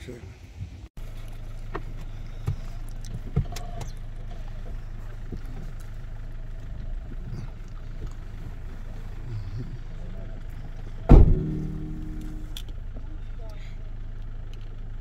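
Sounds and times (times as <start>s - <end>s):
car engine idling: 1.0s - 15.0s
sharp engine knocks: 11.0s - 12.7s.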